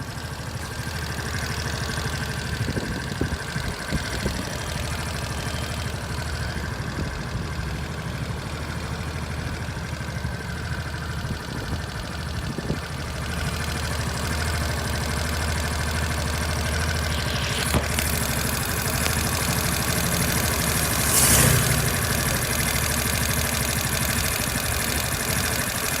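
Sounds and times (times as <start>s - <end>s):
scooter engine idling: 0.0s - 26.0s.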